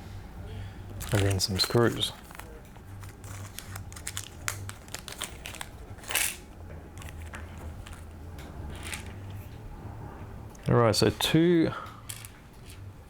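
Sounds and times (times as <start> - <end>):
faint low hum: 0.0 - 13.0
small parts clicking: 3.9 - 6.4, 12.1 - 12.8.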